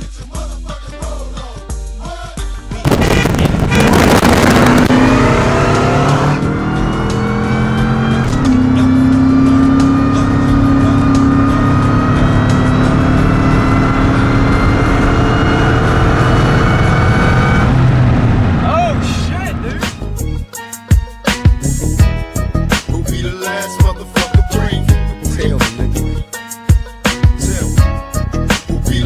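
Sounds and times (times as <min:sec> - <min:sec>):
car engine at full throttle: 0:02.9 - 0:20.3.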